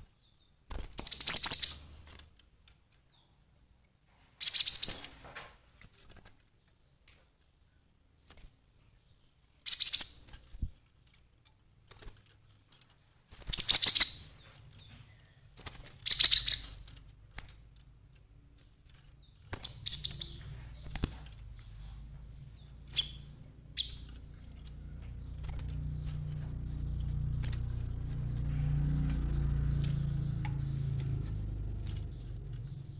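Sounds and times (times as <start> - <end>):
bird sharp call bursts: 1.0 - 2.0
low hum: 20.4 - 32.9.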